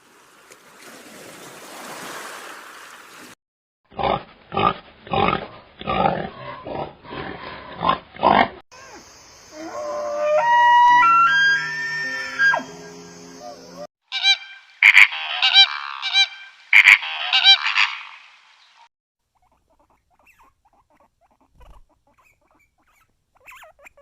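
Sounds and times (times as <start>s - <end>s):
outdoor noise: 0.0s - 24.0s
animal honking calls: 14.1s - 18.2s.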